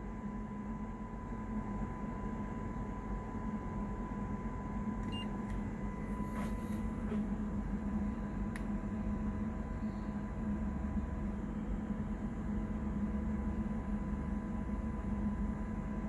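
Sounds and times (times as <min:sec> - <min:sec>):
electrical hum and hiss: 0:00.0 - 0:16.0
faint steady test tone: 0:02.7 - 0:06.3.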